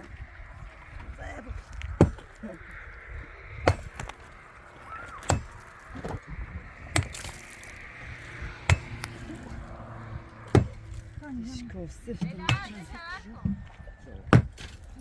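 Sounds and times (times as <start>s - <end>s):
sharp chopping blows: 8.7s - 9.2s.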